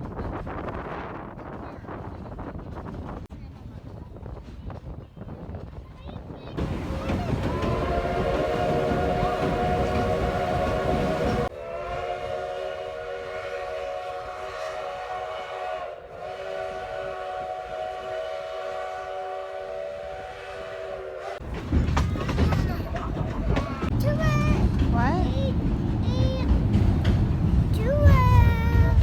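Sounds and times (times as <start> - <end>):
train rumbling: 0.0 - 29.0
steam locomotive chime whistle: 6.6 - 21.4.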